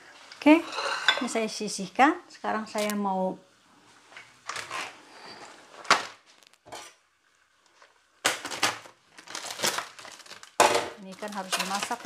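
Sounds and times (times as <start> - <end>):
crinkling and rustling: 4.4 - 6.8, 7.6 - 12.0.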